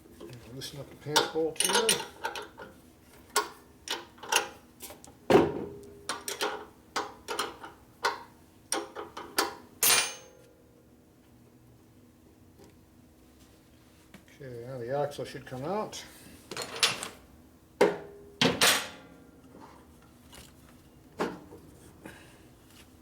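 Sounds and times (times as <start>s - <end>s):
wrench clinking on metal: 1.2s - 2.6s, 9.8s - 10.4s.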